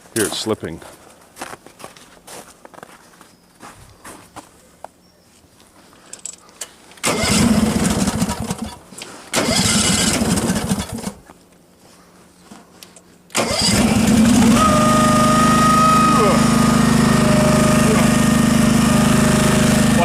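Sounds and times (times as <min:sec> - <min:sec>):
starter motor cranking: 0:07.0 - 0:11.2, 0:13.3 - 0:20.0
tractor engine running: 0:07.0 - 0:11.3, 0:13.3 - 0:20.0.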